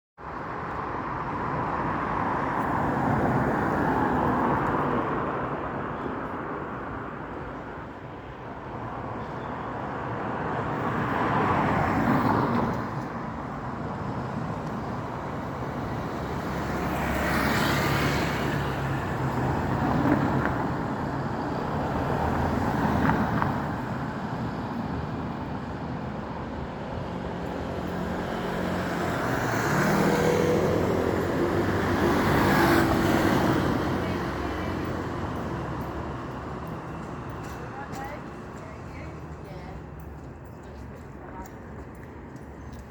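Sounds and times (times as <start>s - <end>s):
cars passing: 0.2s - 42.9s
steady road noise: 0.2s - 42.9s
motorcycles passing: 27.4s - 37.0s.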